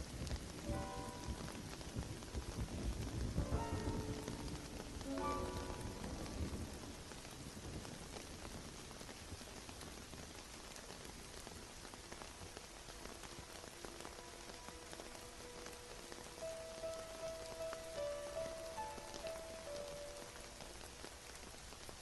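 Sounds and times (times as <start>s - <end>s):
rain falling: 0.0s - 22.0s
soft piano notes: 0.6s - 7.1s, 14.1s - 21.0s.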